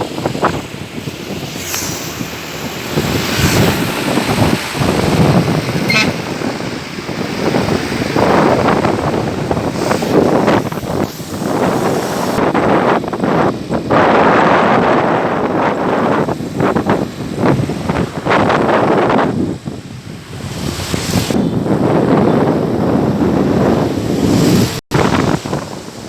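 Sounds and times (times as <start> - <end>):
truck and traffic noise: 0.0 - 12.5
wind buffeting microphone: 0.0 - 26.0
brief high tone: 5.8 - 6.3.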